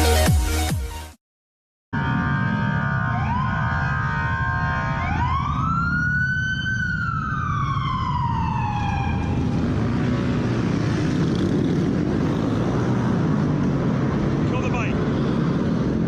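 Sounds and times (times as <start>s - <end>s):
police siren wailing: 1.9s - 10.0s
vehicle and road rumble: 2.0s - 16.0s.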